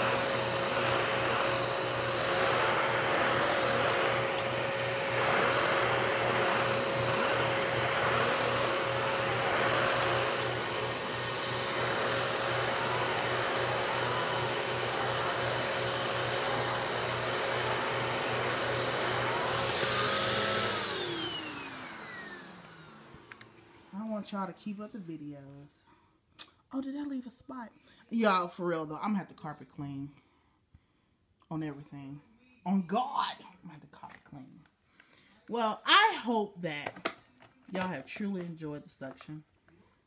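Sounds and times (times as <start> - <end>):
vacuum cleaner motor whine: 0.0 - 24.2
vacuum brushing over carpet: 0.0 - 24.4.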